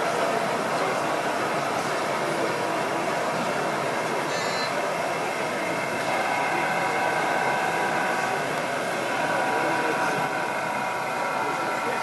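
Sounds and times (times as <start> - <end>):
hum of busy hall: 0.0 - 12.0
model train motor whine: 4.3 - 12.0.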